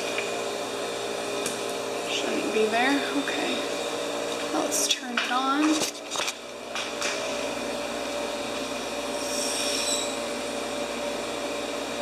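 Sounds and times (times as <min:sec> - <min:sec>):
steady hum: 0:00.0 - 0:12.0
high whistle: 0:09.2 - 0:10.2.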